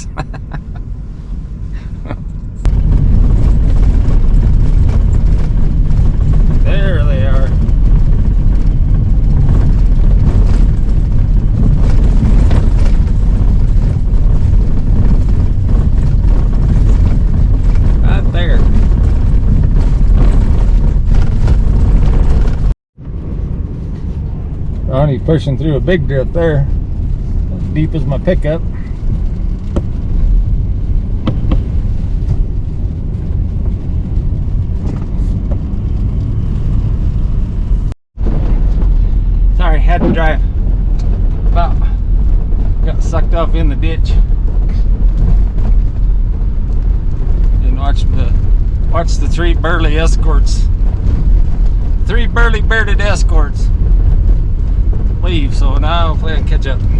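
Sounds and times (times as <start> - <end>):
truck engine and tyres rumbling: 0.0 - 56.9
knocks and rattles: 2.1 - 22.8, 26.6 - 37.4.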